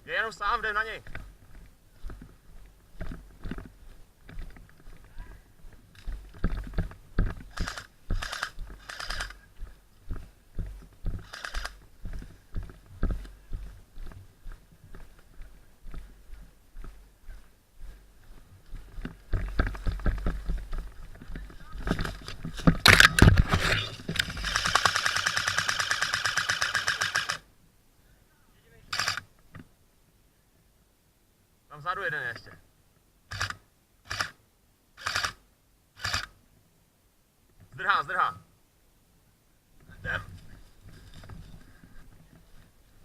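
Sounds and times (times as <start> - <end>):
footsteps and gear thuds: 1.0 - 24.7
airsoft gun rapid clicking: 7.5 - 9.4, 11.2 - 11.8, 24.2 - 27.4, 36.0 - 36.3
airsoft gun firing full-auto: 24.4 - 27.4.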